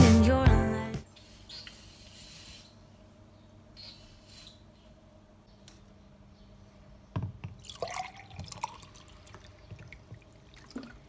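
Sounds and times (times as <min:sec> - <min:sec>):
liquid dripping: 0:07.5 - 0:11.0.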